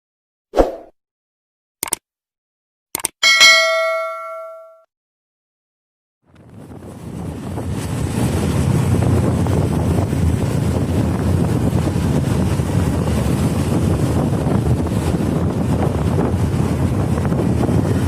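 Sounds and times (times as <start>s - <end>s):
wind buffeting microphone: 6.3s - 18.0s.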